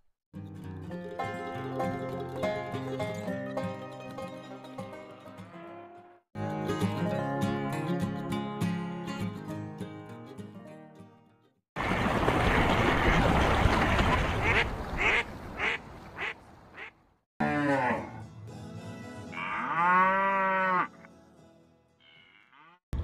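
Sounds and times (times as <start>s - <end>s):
cow mooing: 5.2s - 6.2s, 17.4s - 18.2s, 19.3s - 21.1s, 22.0s - 22.8s.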